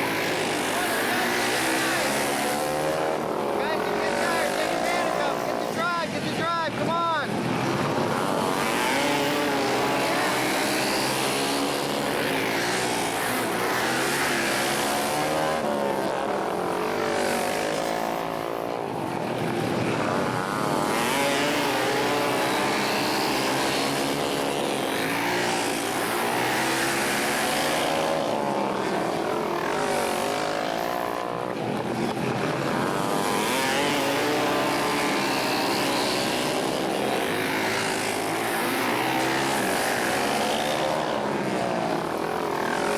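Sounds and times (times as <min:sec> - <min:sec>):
racing motorcycles passing: 0:00.0 - 0:42.9.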